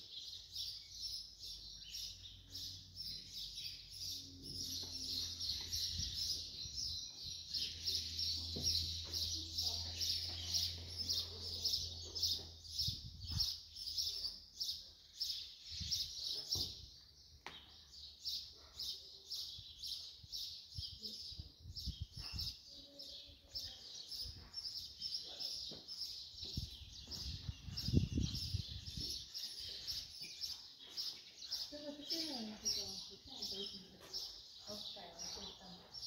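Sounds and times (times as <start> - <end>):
bird chirping: 0.0 - 36.0
low rumbles on microphone: 26.4 - 29.2.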